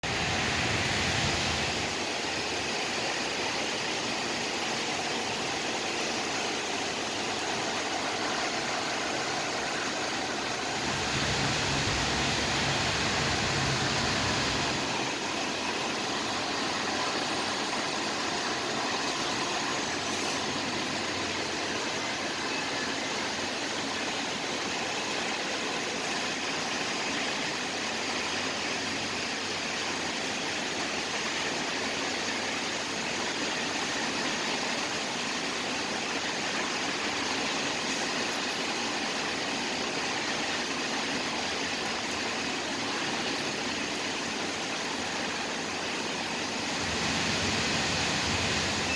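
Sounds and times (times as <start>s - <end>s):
rain falling: 0.0s - 48.9s
traffic hum: 0.0s - 48.9s.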